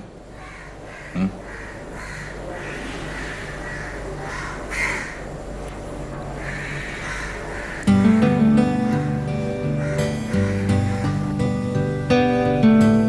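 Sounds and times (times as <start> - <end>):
bird calling: 0.3 - 5.3, 9.7 - 11.3.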